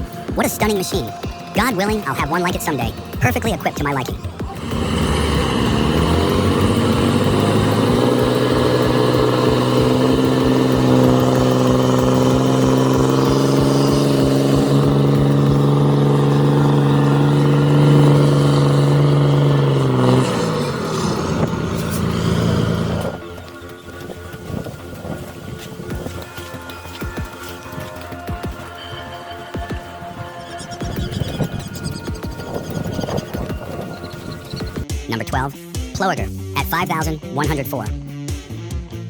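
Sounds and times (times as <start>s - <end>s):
truck diesel engine revving: 0.0s - 37.6s.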